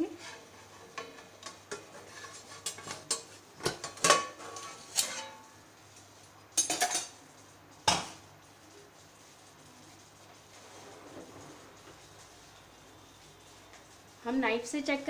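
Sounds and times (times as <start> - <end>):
metal cookware clanking: 0.1 - 5.6, 6.5 - 7.2.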